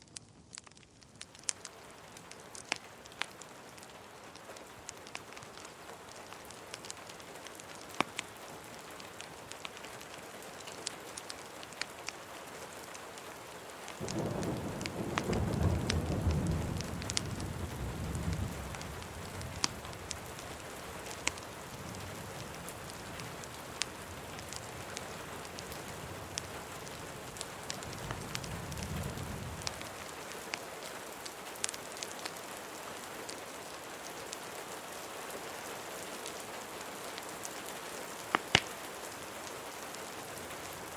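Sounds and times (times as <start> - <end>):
fireplace crackles: 0.0 - 40.9
steady rain: 0.0 - 40.9
low thunder rumble: 14.0 - 20.2.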